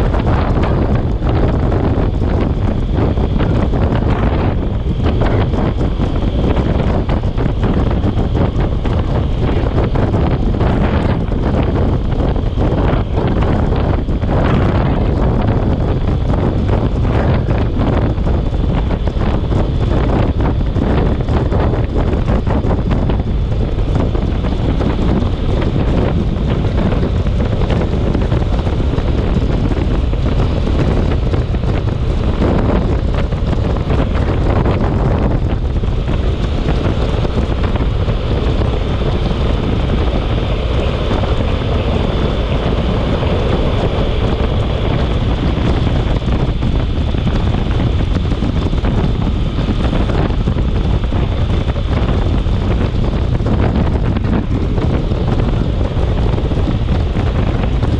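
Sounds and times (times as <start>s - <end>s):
wind buffeting microphone: 0.0s - 57.9s.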